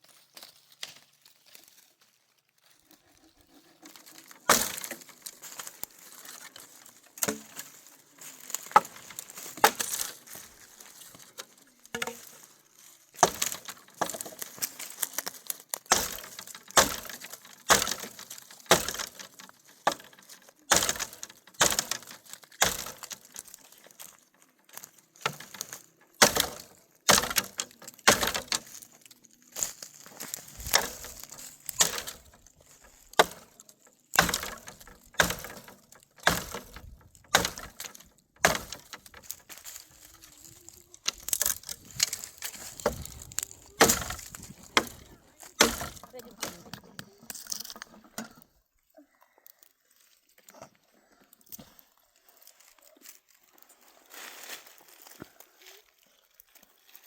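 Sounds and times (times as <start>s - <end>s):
brush rustling: 0.0s - 48.2s, 52.1s - 57.0s
firewood cracking and snapping: 3.8s - 48.4s.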